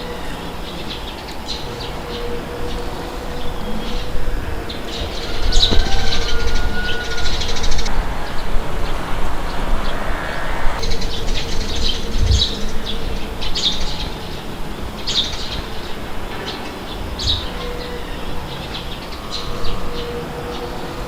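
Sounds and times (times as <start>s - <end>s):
wind rushing: 1.5s - 15.1s.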